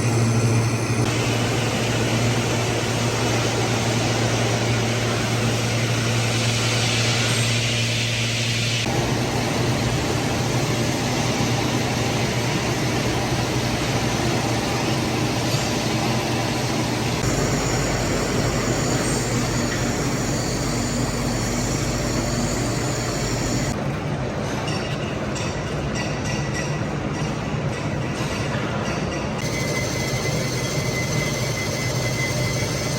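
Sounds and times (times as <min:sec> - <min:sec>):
lathe motor hum: 0:00.0 - 0:06.5, 0:08.8 - 0:23.8
machining hiss: 0:00.1 - 0:23.8.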